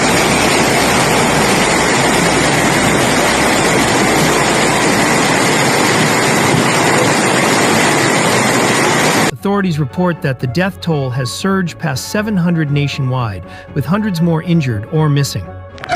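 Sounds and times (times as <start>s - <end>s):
rushing water: 0.0s - 9.3s.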